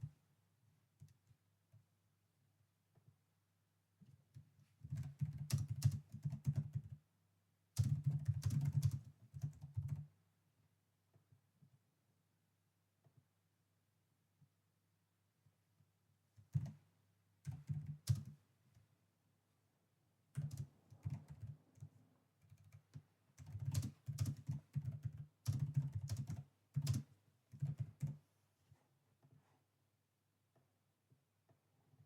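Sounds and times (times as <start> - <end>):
typing on a keyboard: 1.0 - 1.4, 4.0 - 7.0, 7.8 - 10.2, 16.4 - 16.8, 17.4 - 18.4, 20.3 - 28.2.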